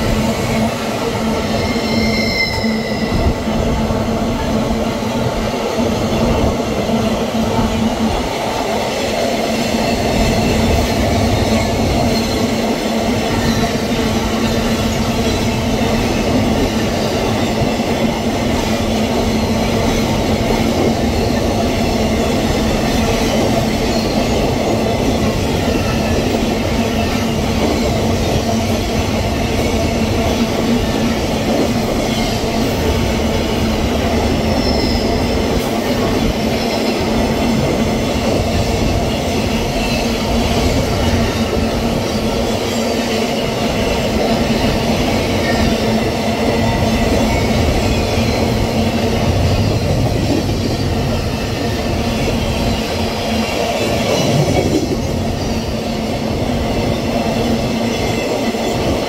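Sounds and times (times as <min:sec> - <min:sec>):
freight train wheels rumbling: 0:00.0 - 0:59.0
high wheel squeal: 0:01.4 - 0:03.4, 0:34.4 - 0:35.4.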